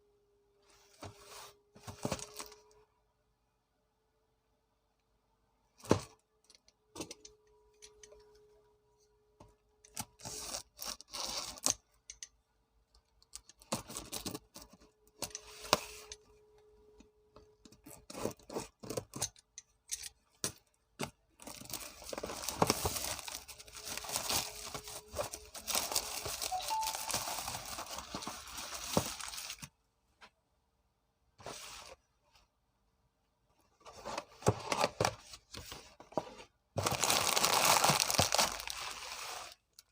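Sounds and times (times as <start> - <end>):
packaging tearing and crinkling: 21.4 - 29.6, 36.8 - 39.0
snack packaging rustling: 36.8 - 39.0.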